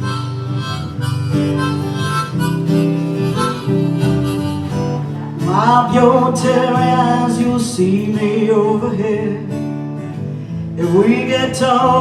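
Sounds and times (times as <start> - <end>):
harmonica melody: 0.0 - 6.0
acoustic guitar: 0.0 - 12.0.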